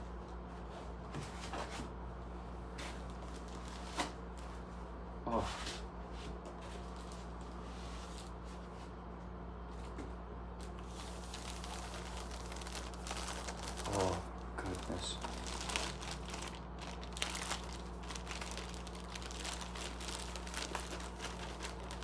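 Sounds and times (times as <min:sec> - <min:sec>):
steady low hum: 0:00.0 - 0:22.0
packaging crinkling and rustling: 0:02.9 - 0:04.5, 0:06.6 - 0:08.4, 0:10.6 - 0:22.0.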